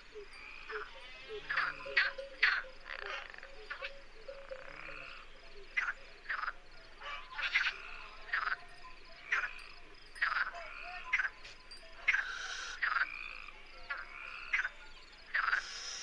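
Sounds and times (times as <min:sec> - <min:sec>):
faint steady tone: 0:00.0 - 0:14.1
animal croaking: 0:00.2 - 0:08.6.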